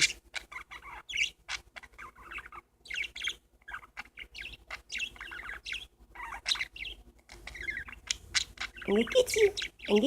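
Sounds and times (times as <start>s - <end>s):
parakeets chirping: 0.0s - 10.0s.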